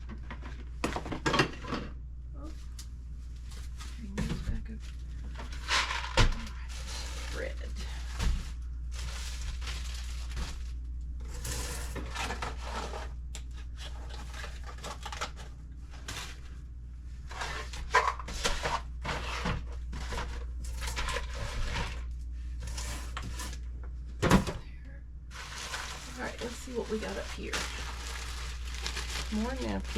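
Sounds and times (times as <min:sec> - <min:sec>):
food packaging crinkling: 0:05.4 - 0:16.4, 0:25.3 - 0:29.9.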